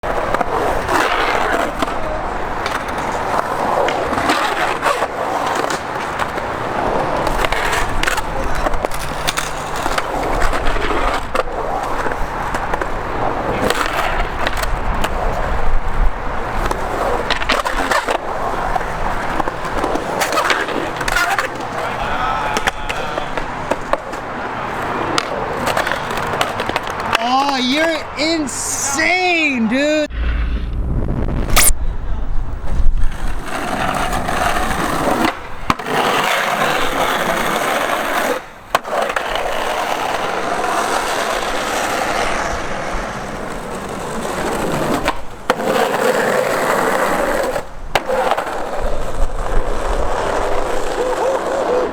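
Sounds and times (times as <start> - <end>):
skateboard clacks: 0.0 - 29.3, 32.6 - 51.9
skateboards rolling: 0.0 - 30.6, 31.5 - 51.9
people's voices: 21.7 - 23.5, 27.1 - 30.1.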